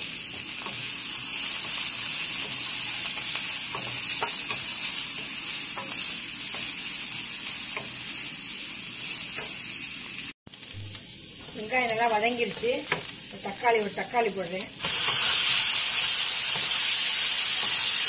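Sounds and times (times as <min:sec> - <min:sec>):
onions sizzling in hot oil: 0:00.0 - 0:18.0
wooden spoon scraping a pan: 0:00.3 - 0:08.1.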